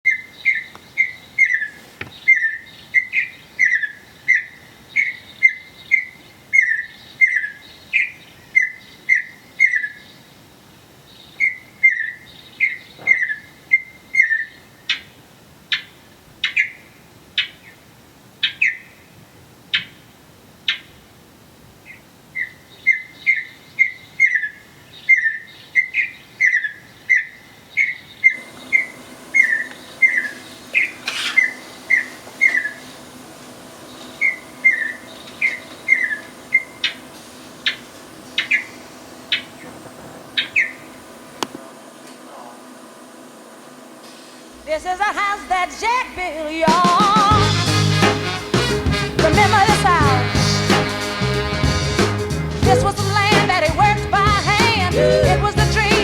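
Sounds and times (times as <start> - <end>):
bird whistled calls: 0.1 - 10.0, 11.4 - 14.6, 22.4 - 32.9, 34.2 - 37.0, 54.9 - 55.5.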